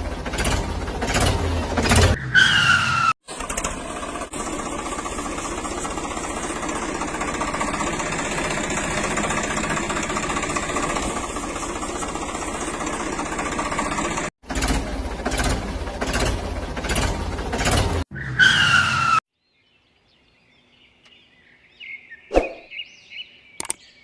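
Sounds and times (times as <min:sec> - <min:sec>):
vehicle engine running steadily: 0:00.0 - 0:02.2, 0:03.3 - 0:18.0.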